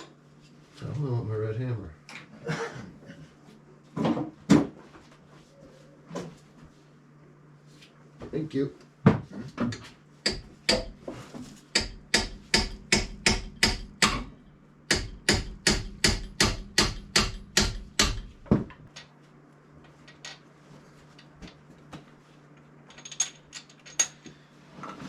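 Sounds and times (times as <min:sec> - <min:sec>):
hammer striking metal part: 0:10.3 - 0:11.0, 0:11.7 - 0:14.3, 0:14.9 - 0:18.4.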